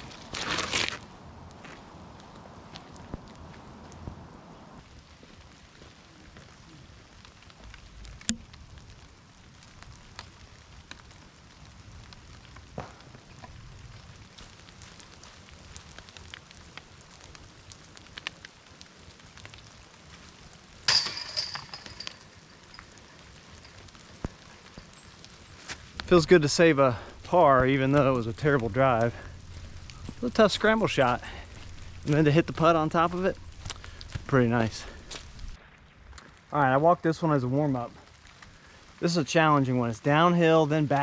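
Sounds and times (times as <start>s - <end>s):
rain pattering: 0.0s - 41.0s
metal chains jangling: 20.9s - 23.8s.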